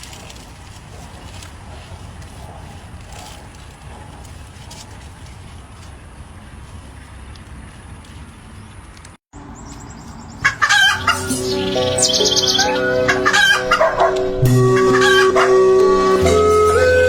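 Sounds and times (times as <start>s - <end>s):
loud fowl calls: 10.4s - 17.0s
music with long held notes: 11.0s - 17.0s.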